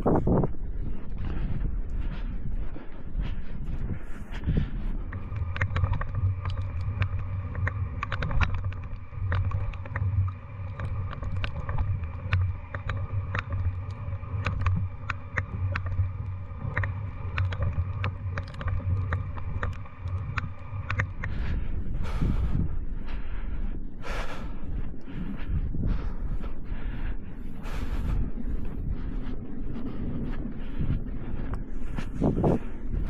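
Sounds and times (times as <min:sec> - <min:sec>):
light ticks: 0:00.0 - 0:23.2
distant aircraft drone: 0:00.0 - 0:33.0.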